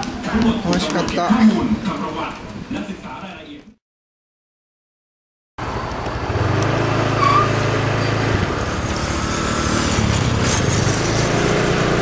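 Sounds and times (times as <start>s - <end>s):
road and wind noise: 5.6s - 12.0s
small motorcycle engine running: 5.6s - 12.0s.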